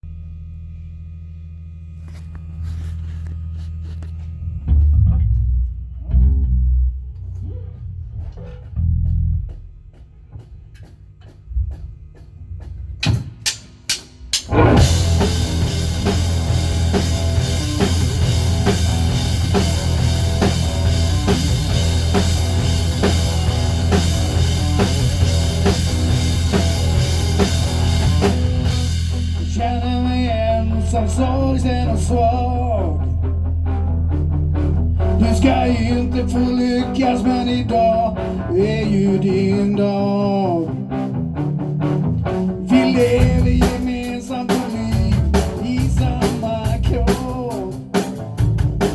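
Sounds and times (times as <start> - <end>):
bass notes: 0.0 - 48.9
drum hits: 12.6 - 29.3
band playing: 13.0 - 29.6, 41.8 - 48.9.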